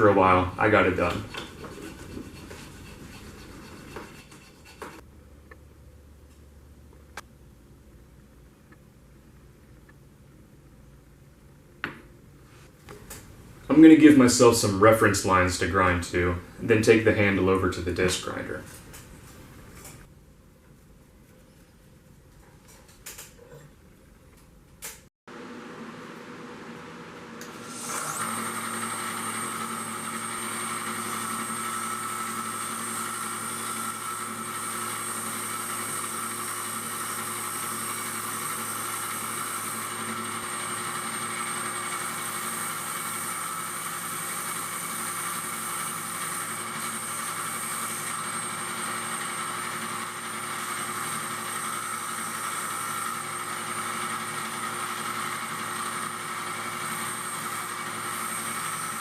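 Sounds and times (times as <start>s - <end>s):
wood grinding hiss: 0.0s - 5.0s, 27.6s - 59.0s
disc grinder motor whine: 27.4s - 59.0s.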